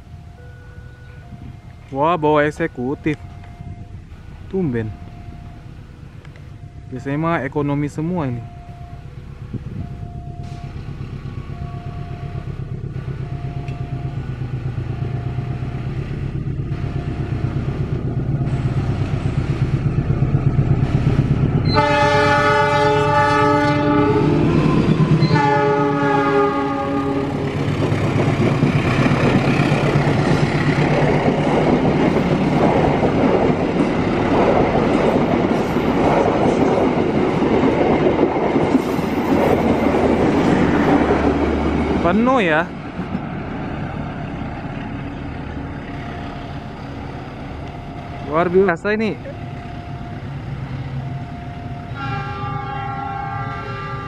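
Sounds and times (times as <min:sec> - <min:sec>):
level-crossing warning bell ringing: 0:00.0 - 0:18.6, 0:45.9 - 0:54.0
diesel locomotive engine rumble: 0:00.0 - 0:54.0
locomotive horn: 0:21.6 - 0:27.5, 0:51.8 - 0:54.0.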